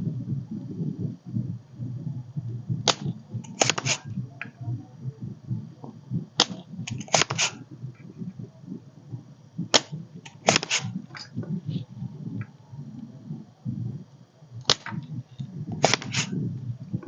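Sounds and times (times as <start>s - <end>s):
steady low rumble: 0.0s - 17.0s
hand tools clicking and snapping: 2.9s - 4.0s, 6.4s - 7.6s, 9.8s - 10.9s, 15.8s - 16.3s.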